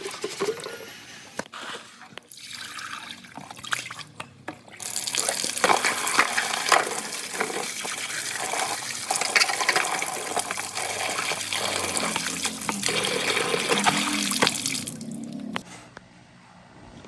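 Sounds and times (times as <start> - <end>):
water running and splashing: 4.8 - 15.6.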